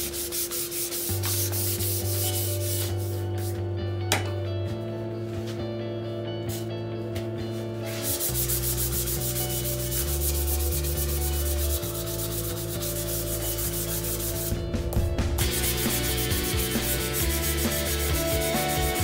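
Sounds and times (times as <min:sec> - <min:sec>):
sandpaper rubbing on wood: 0:00.0 - 0:03.5, 0:07.9 - 0:14.5, 0:15.4 - 0:19.0
background music: 0:00.0 - 0:19.0.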